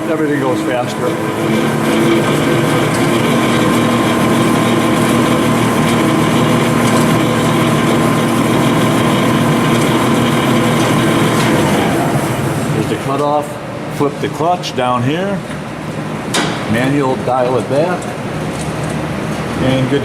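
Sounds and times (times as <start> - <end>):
band saw running: 0.0 - 13.3.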